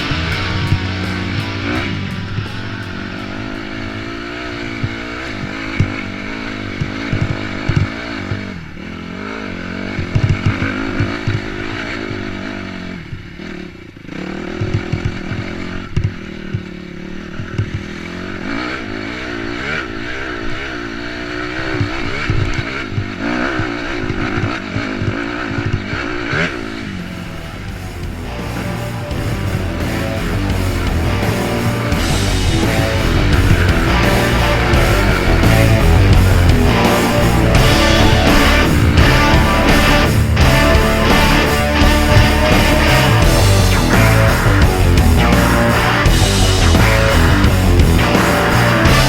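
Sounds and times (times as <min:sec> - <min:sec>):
dirt bike engine revving: 0:00.0 - 0:49.0
low thumps: 0:26.5 - 0:49.0.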